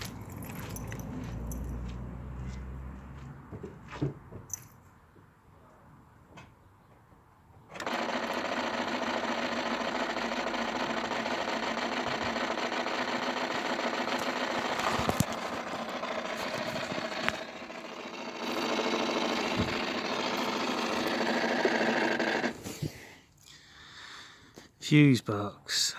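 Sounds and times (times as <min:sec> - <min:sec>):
mechanical buzzing chatter: 0:07.7 - 0:22.6.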